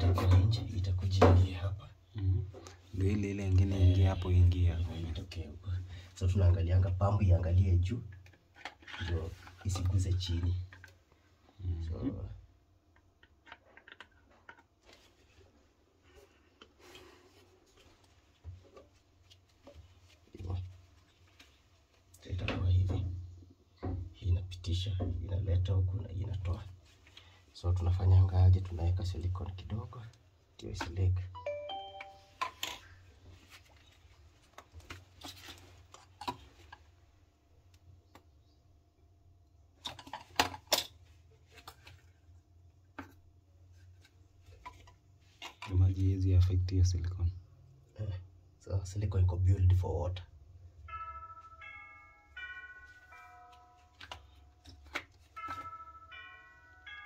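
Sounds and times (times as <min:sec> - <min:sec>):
plastic parts clicking and knocking: 0:08.1 - 0:11.0, 0:12.9 - 0:14.9, 0:39.8 - 0:42.1, 0:42.9 - 0:43.2.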